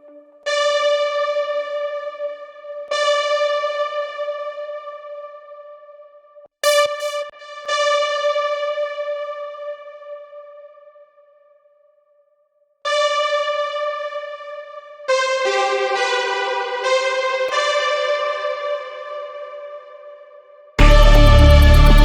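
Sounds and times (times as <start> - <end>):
bright synthesizer note: 20.8 - 22.0.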